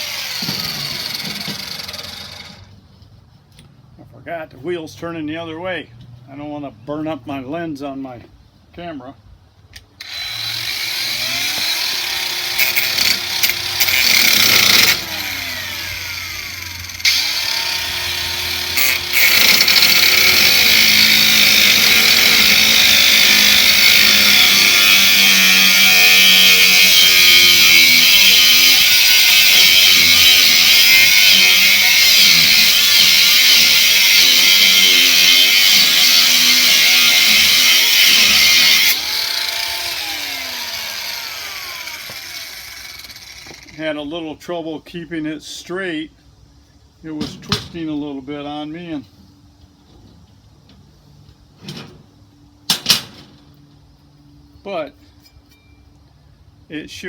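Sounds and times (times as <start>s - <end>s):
angle grinder cutting steel: 0.0s - 2.7s, 10.0s - 43.8s.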